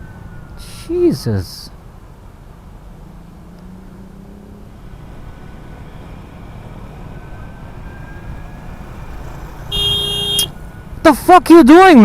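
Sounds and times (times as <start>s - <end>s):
passing vehicles: 1.5s - 12.0s
wind rumble: 4.8s - 11.1s.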